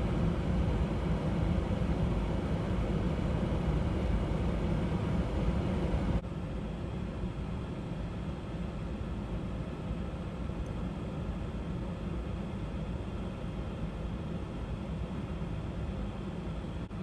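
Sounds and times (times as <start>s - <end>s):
car engine idling inside cabin: 0.0s - 6.2s.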